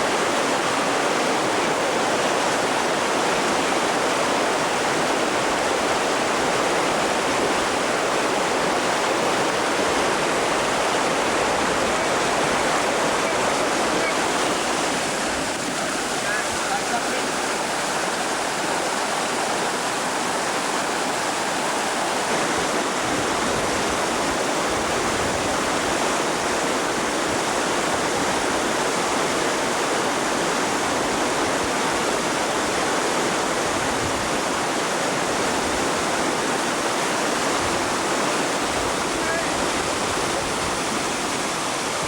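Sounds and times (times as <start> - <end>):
river water rushing: 0.0 - 42.0.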